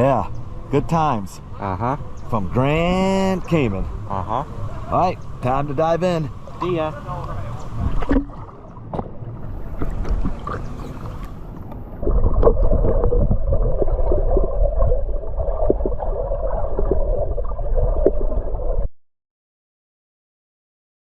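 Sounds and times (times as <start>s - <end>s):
underwater clicks: 6.6s - 16.0s
muffled underwater rumble: 7.2s - 18.9s
gurgling bubbles: 7.6s - 18.9s.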